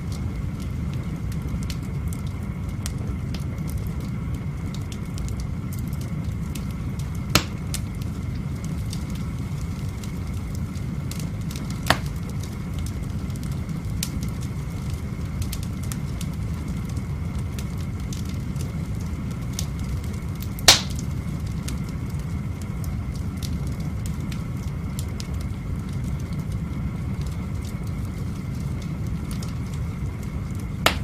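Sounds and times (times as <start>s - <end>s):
fire popping: 0.0s - 31.0s
wood fire crackling: 0.0s - 31.0s
loud sharp crack: 7.4s - 7.8s, 11.9s - 12.2s, 20.7s - 21.1s.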